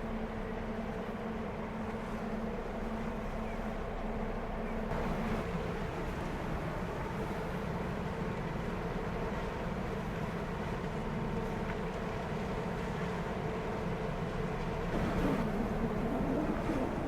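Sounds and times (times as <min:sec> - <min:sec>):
ferry engines humming: 0:13.6 - 0:17.0.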